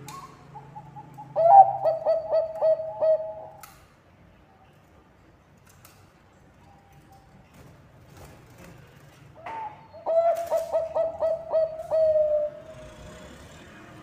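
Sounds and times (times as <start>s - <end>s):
dove cooing: 0.6s - 3.6s, 9.6s - 13.0s.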